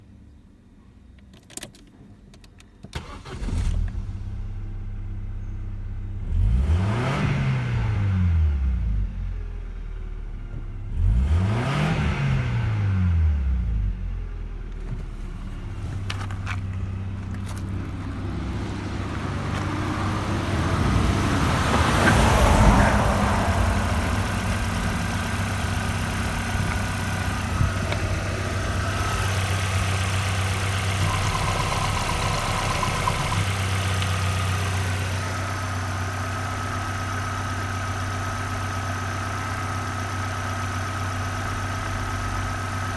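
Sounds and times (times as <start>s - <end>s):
car engine starting and idling: 1.4s - 42.9s
car engine revving: 6.2s - 8.8s, 10.9s - 13.6s, 16.8s - 38.0s.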